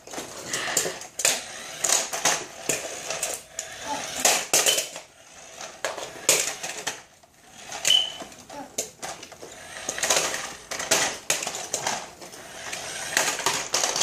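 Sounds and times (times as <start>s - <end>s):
toy vehicles clattering: 0.0s - 14.0s
brief high squeak: 7.9s - 8.2s.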